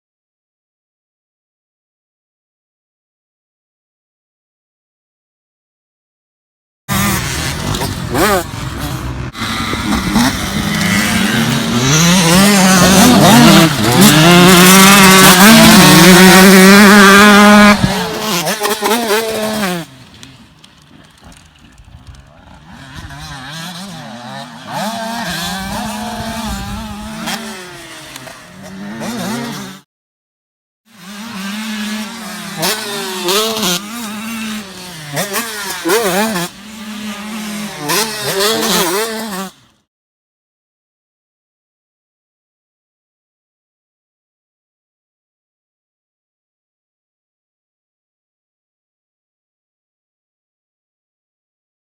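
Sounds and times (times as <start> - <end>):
motocross bike engine revving: 6.9 - 29.9, 30.9 - 39.8.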